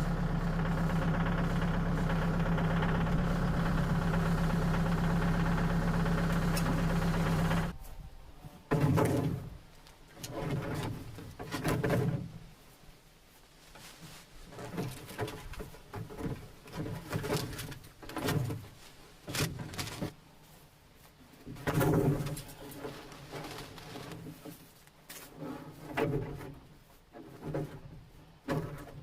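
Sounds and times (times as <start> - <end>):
wood clunking into container: 8.7 - 12.4, 21.5 - 24.6.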